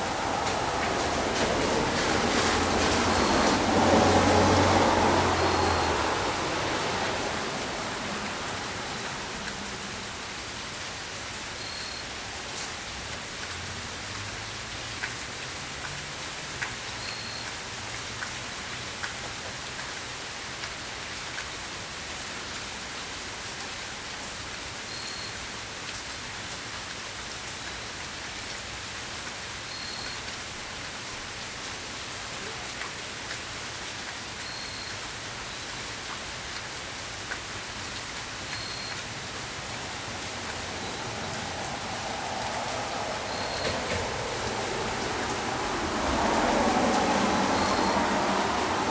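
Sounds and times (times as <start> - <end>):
rain hissing: 0.0 - 17.0, 27.0 - 48.9.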